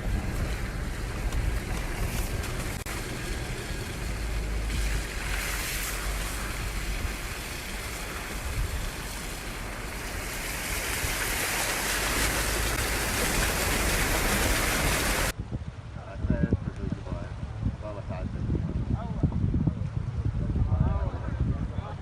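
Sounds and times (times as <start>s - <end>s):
storm water rushing: 0.0s - 16.0s
wind buffeting microphone: 0.0s - 22.0s.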